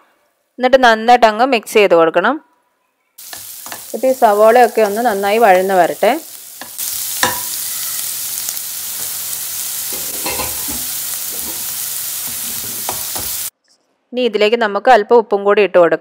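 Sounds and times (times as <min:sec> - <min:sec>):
onions sizzling in oil: 0:03.2 - 0:13.5
spatula stirring in pan: 0:03.2 - 0:13.5.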